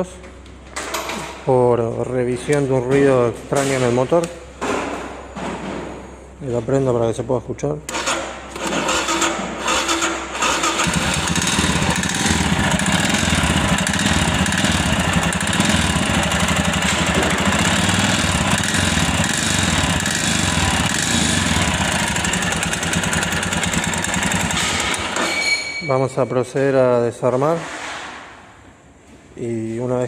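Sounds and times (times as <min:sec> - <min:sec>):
motorcycle engine starting and idling: 0:07.9 - 0:25.4
strange engine noise: 0:08.6 - 0:25.2.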